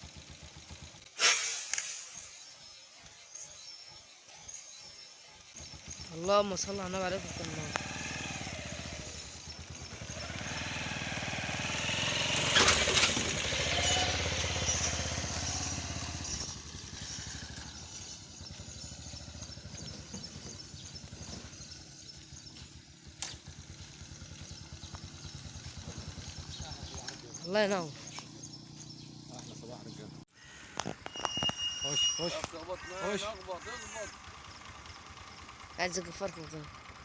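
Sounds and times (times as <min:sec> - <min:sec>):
engine running with fast pulse: 0:00.0 - 0:01.2, 0:01.8 - 0:30.3
sharp click: 0:01.2 - 0:02.1.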